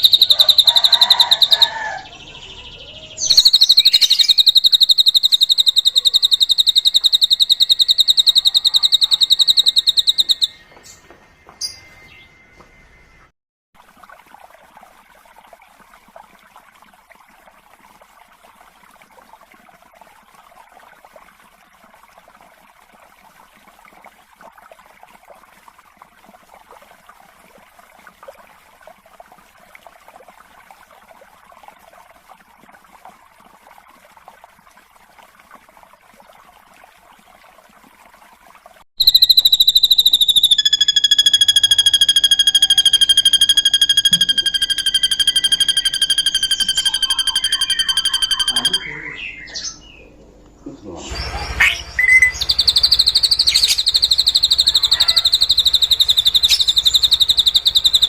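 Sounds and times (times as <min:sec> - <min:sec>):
loud sustained high whistle: 0:39.0 - 0:48.8
faint bird chattering chorus: 0:46.6 - 0:49.8, 0:52.4 - 0:58.0.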